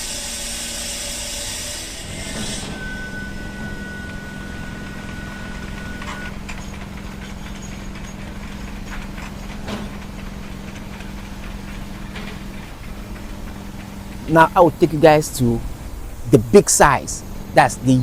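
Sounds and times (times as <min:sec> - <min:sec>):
thin high whine: 0:02.0 - 0:08.2, 0:14.2 - 0:18.0
low machine hum: 0:02.0 - 0:18.0.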